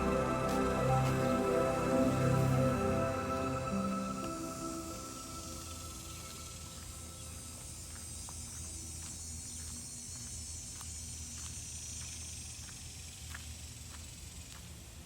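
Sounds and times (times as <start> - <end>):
steady low hum: 0.0 - 12.0
high insect-like hiss: 0.0 - 15.0.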